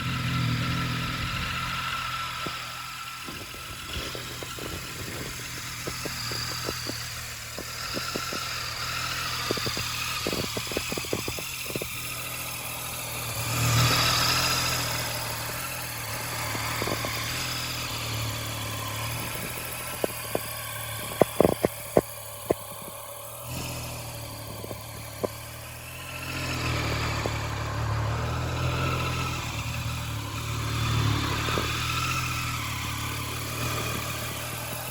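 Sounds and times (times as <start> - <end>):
motorcycle engine idling: 0.0 - 34.9
sharp clicks: 18.8 - 23.8.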